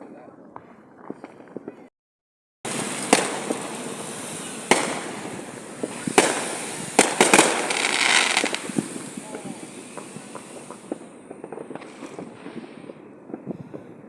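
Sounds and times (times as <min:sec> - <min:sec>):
fireworks crackling: 0:02.6 - 0:14.0
fireworks sharp bangs: 0:02.7 - 0:14.0.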